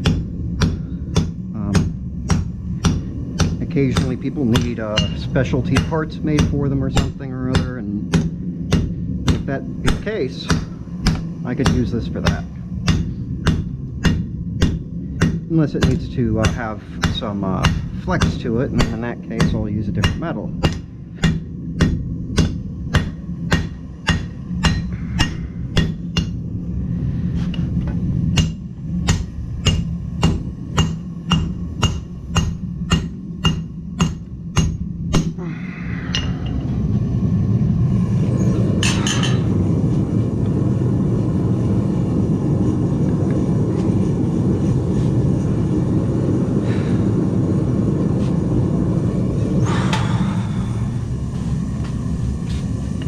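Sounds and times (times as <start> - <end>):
hammer striking steel on anvil: 0.0 - 26.4, 28.3 - 35.4, 36.0 - 36.8, 38.8 - 39.6
low forge roar: 0.0 - 53.0.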